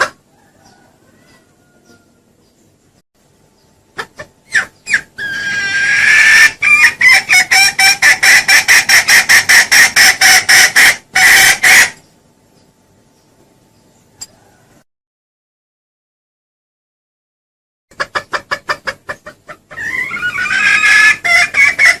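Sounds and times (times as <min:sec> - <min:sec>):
junglefowl lure call clucks: 0:00.0 - 0:02.0, 0:03.9 - 0:12.0, 0:17.9 - 0:22.0.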